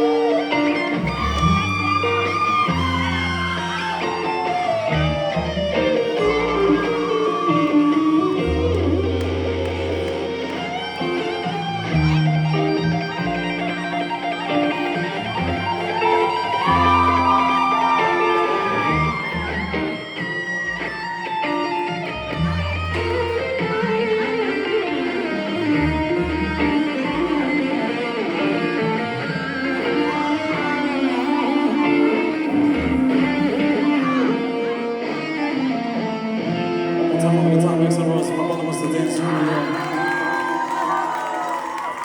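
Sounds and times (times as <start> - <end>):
bass line: 0.0 - 21.1, 21.8 - 34.3
electric guitar solo: 0.0 - 42.0.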